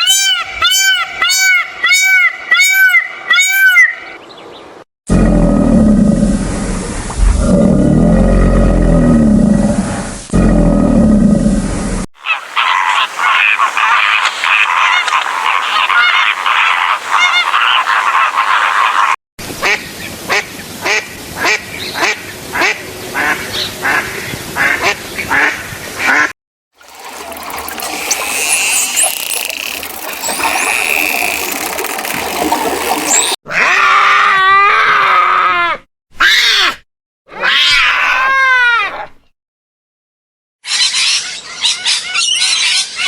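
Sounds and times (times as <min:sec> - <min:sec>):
ducks quacking: 0:12.2 - 0:19.8.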